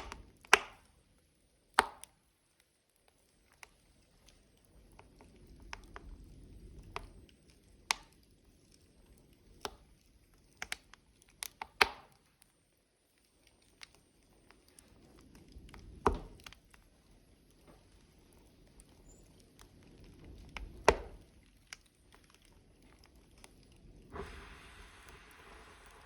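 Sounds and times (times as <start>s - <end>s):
sharp pops: 0.0s - 0.9s
burning logs crackling: 0.0s - 26.0s
low rumble of flame: 2.4s - 26.0s.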